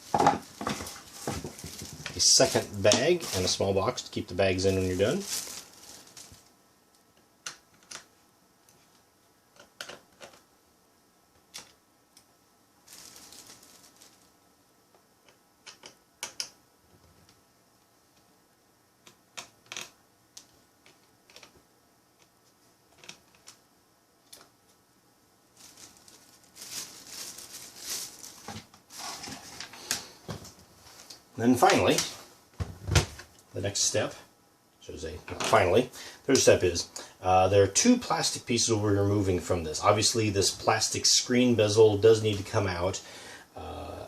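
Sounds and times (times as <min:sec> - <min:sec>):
handling noise: 0:00.0 - 0:06.5.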